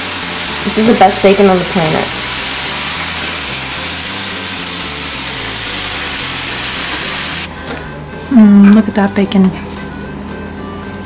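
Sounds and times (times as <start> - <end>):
bacon sizzling in a frying pan: 0.0 - 7.5.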